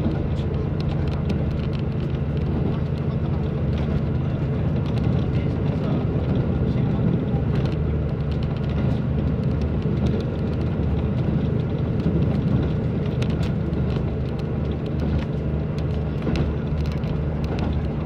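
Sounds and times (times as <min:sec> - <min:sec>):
rumble of running gear: 0:00.0 - 0:18.0
train engine drone: 0:00.0 - 0:18.0.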